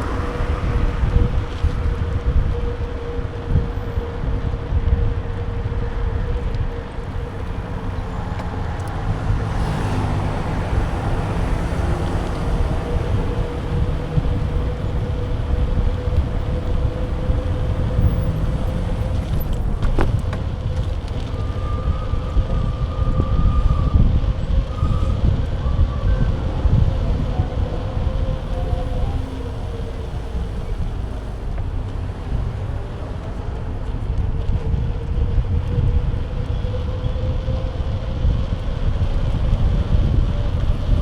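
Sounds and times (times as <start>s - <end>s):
road rumble: 0.0s - 41.0s
wind buffeting microphone: 0.0s - 41.0s.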